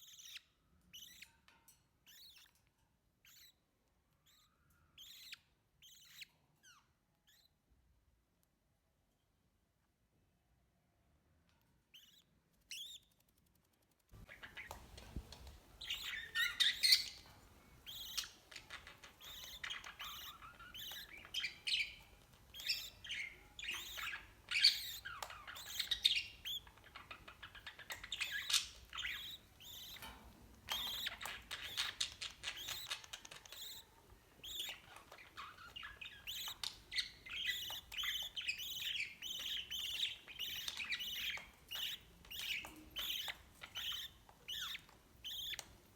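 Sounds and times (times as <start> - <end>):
parrots chirping and squawking: 14.2 - 45.9.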